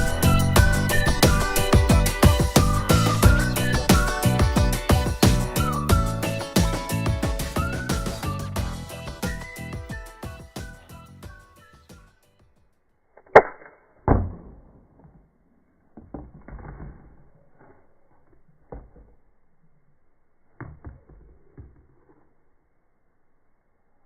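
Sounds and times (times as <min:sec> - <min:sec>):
sharp snap: 0:13.2 - 0:13.8.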